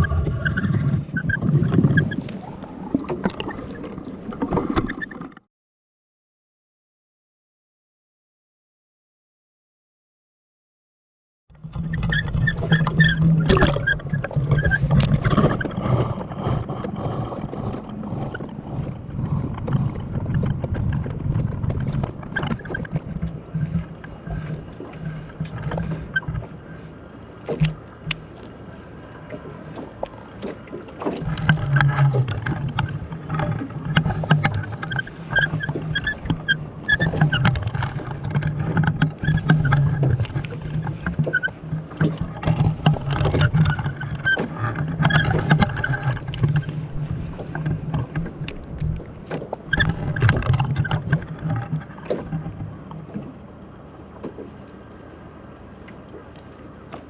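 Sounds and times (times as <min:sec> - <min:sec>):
water sloshing and churning: 0:00.0 - 0:05.5, 0:11.5 - 0:57.0
sharp knocks and clicks: 0:29.8 - 0:46.8, 0:47.4 - 0:53.3.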